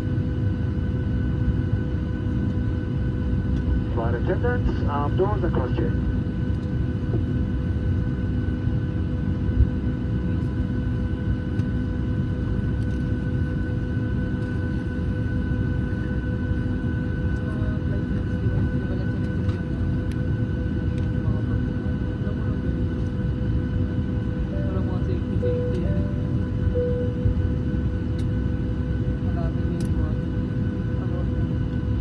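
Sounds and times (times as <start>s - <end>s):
aircraft cabin low rumble: 0.0s - 32.0s
high whine: 24.4s - 27.9s.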